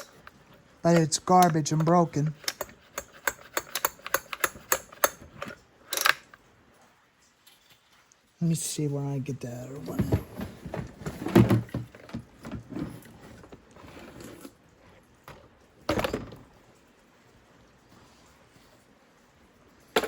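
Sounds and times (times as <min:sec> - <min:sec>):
objects knocking and clattering: 0:09.8 - 0:14.4, 0:15.3 - 0:16.7.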